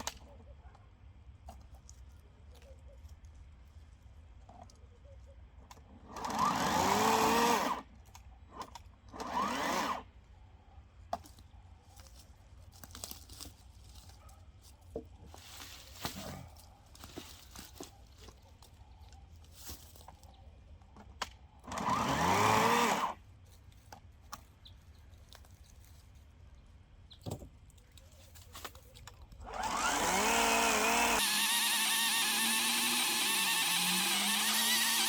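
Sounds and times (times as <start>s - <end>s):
electric chainsaw motor bursts: 6.2s - 7.8s, 9.2s - 10.0s, 21.7s - 23.2s, 29.4s - 35.0s.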